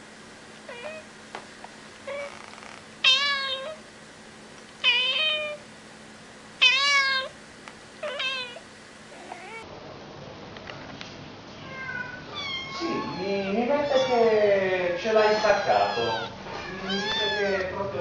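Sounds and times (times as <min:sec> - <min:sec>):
kitten meowing: 0:00.7 - 0:01.1, 0:02.1 - 0:03.8, 0:04.8 - 0:05.6, 0:06.6 - 0:07.3, 0:08.0 - 0:08.6, 0:09.2 - 0:09.6, 0:11.7 - 0:14.2, 0:15.2 - 0:17.8.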